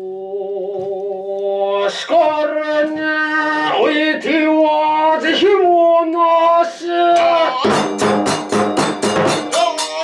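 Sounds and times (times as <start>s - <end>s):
man chanting held notes: 8.8s - 10.0s.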